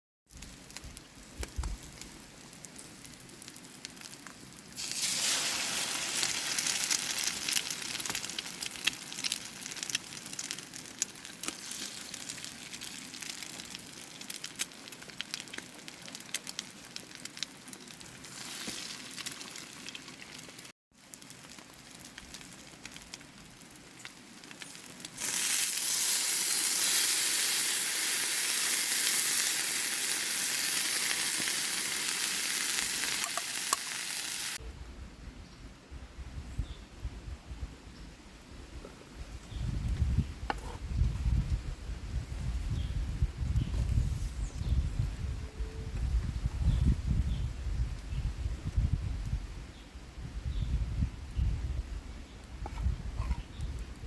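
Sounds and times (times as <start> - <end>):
food sizzling in a pan: 4.8 - 10.0, 25.2 - 34.6.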